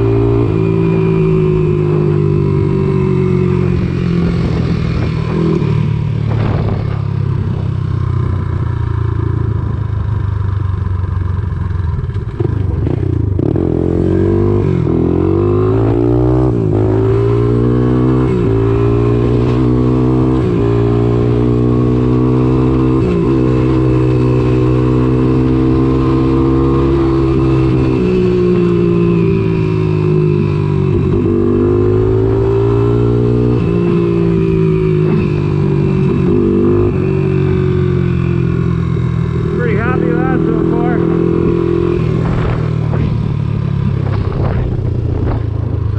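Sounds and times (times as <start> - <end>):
single-cylinder engine running: 38.7 - 41.7.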